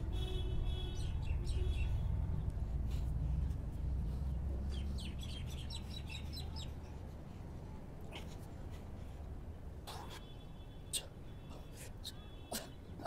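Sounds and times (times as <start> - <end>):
steady low rumble: 1.2 - 10.0
small birds chirping: 4.1 - 7.0.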